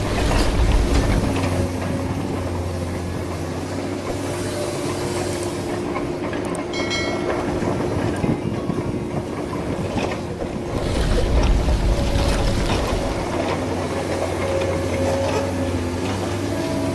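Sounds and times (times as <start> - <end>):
vehicle engine drone: 10.3 - 16.9.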